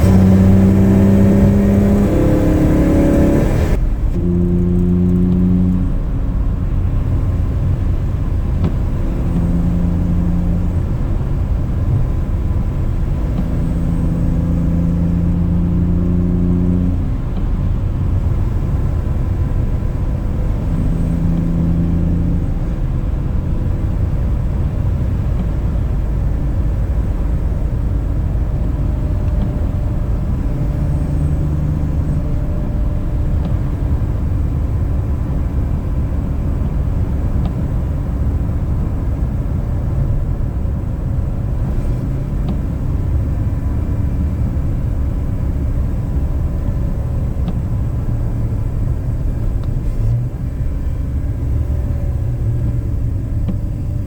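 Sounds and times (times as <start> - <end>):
car engine cruising: 0.0 - 54.0
road noise: 0.0 - 54.0.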